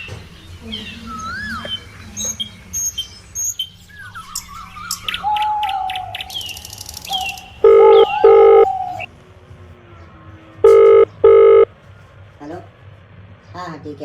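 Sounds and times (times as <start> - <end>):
birds chirping and whistling: 0.0 - 9.1
steady held tone: 7.6 - 8.7.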